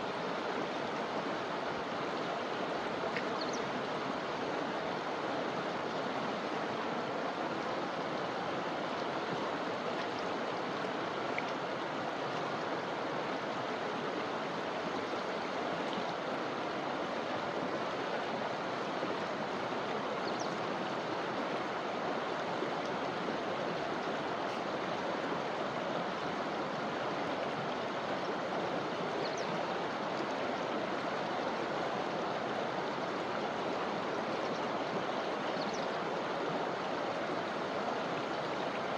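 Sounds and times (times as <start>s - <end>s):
river rushing over stones: 0.0s - 38.9s.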